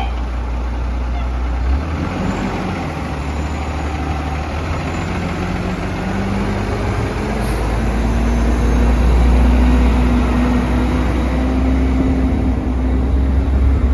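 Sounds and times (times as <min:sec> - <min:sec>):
garbage truck engine rumbling: 0:00.0 - 0:13.9.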